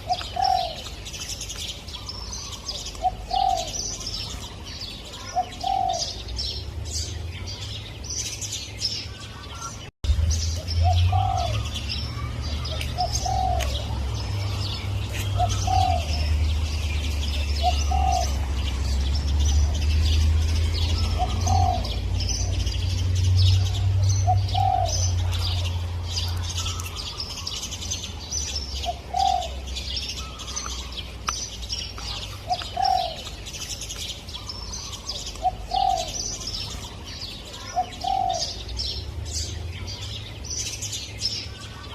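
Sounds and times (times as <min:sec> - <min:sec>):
dove cooing: 0:00.0 - 0:01.1, 0:02.0 - 0:06.3, 0:10.8 - 0:16.7, 0:17.3 - 0:18.7, 0:19.6 - 0:22.8, 0:23.5 - 0:27.2, 0:28.8 - 0:30.9, 0:32.1 - 0:33.4, 0:34.4 - 0:36.9, 0:37.5 - 0:38.7
small birds chirping: 0:00.0 - 0:41.9.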